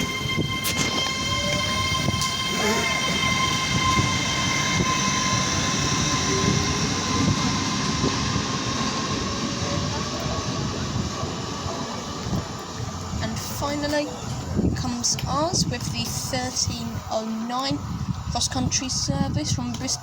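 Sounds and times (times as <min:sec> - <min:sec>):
train traction whine: 0:00.0 - 0:18.9
wheels rumbling on rail: 0:00.0 - 0:19.9.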